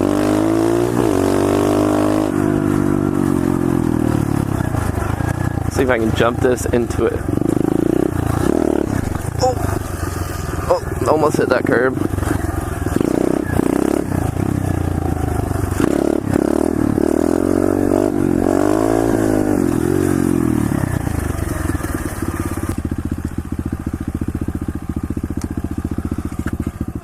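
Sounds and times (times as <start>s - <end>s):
pit bike engine revving: 0.0s - 27.0s.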